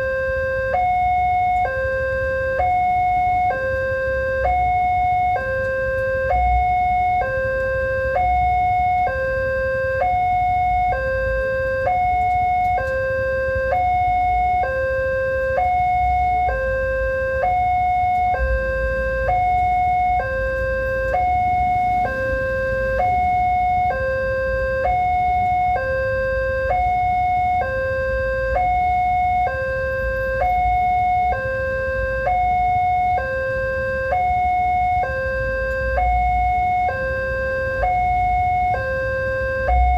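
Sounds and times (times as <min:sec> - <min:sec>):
level crossing two-tone alarm: 0:00.0 - 0:39.9.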